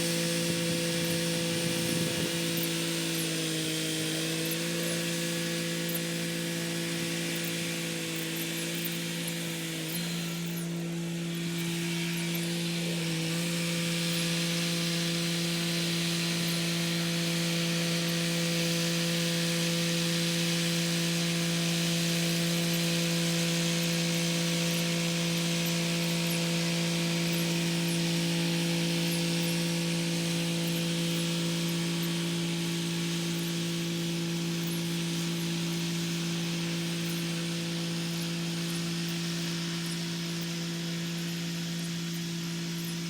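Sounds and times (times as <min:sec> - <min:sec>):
tractor diesel engine running: 0:00.0 - 0:03.4.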